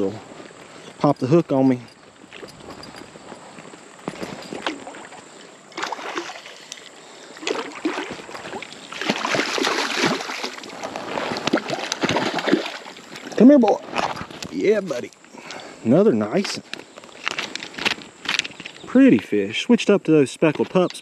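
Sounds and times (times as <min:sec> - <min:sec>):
fish thrashing water splashing: 0:04.6 - 0:13.4.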